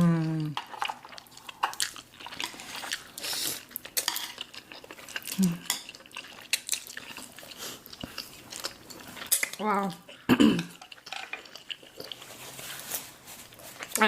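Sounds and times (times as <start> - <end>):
person humming approval: 0.0 - 0.6, 5.4 - 5.6
utensils clinking against a bowl: 10.5 - 11.6.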